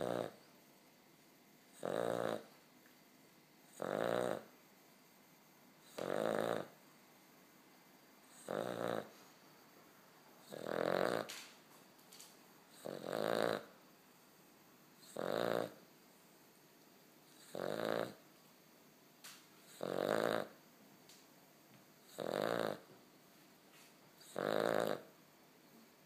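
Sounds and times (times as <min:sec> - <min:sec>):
puppy snoring: 0:00.0 - 0:00.4, 0:01.7 - 0:02.6, 0:03.7 - 0:04.6, 0:05.8 - 0:06.8, 0:08.2 - 0:09.3, 0:10.4 - 0:11.4, 0:12.7 - 0:13.8, 0:15.0 - 0:15.8, 0:17.2 - 0:18.2, 0:19.6 - 0:20.6, 0:22.0 - 0:22.9, 0:24.2 - 0:25.2.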